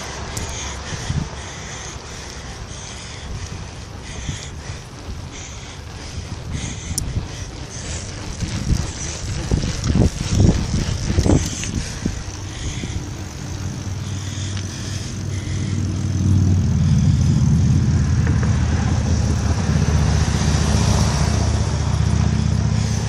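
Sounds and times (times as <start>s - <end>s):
traffic engine and tyre rumble: 0.0s - 23.0s.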